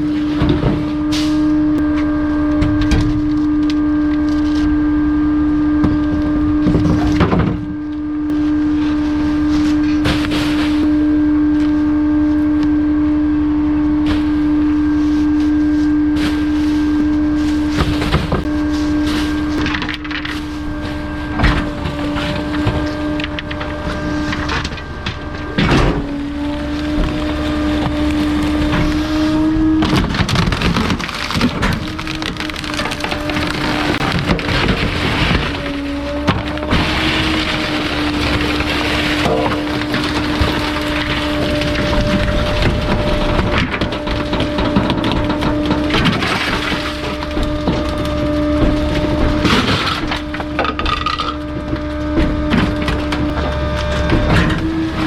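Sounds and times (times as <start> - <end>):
garbage truck compactor crushing: 0.0 - 55.0
hydraulics humming: 0.0 - 55.0
items crunching and cracking: 13.9 - 55.0.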